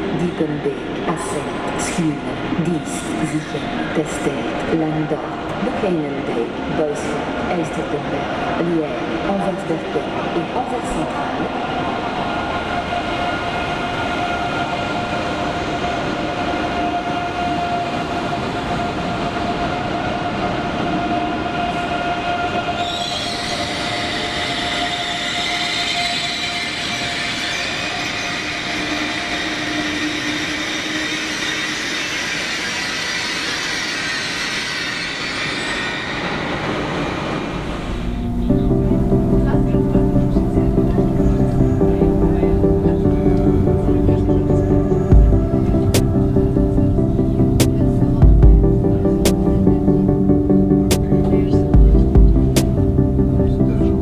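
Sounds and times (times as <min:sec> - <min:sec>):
passenger train running: 0:00.0 - 0:54.0
high-pitched wheel squeal: 0:22.5 - 0:39.0.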